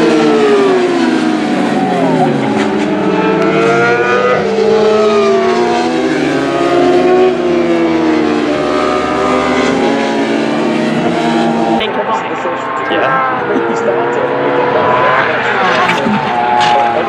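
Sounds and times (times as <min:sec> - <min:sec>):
racing engines passing at speed: 0:00.0 - 0:11.8.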